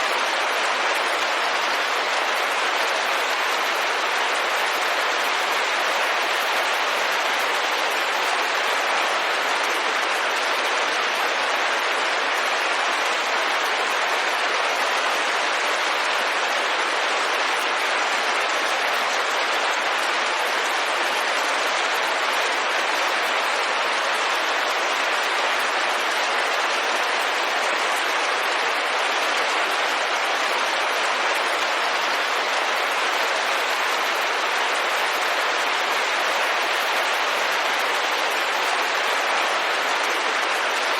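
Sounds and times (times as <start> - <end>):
rain on a window: 0.0 - 40.9.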